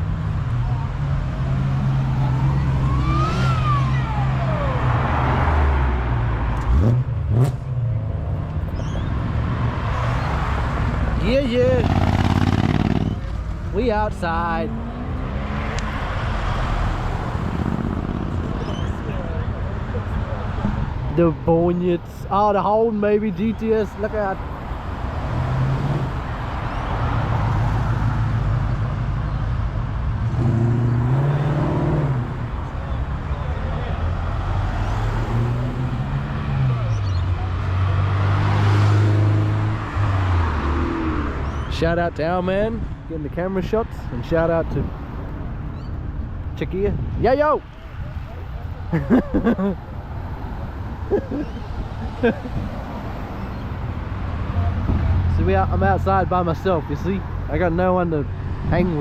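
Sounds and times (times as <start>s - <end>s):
car engines rumbling: 0.0s - 59.0s
engine revving: 1.5s - 8.0s, 9.9s - 13.4s, 14.1s - 18.8s, 30.2s - 32.5s, 34.1s - 41.7s
car engine passing slowly: 23.9s - 46.8s.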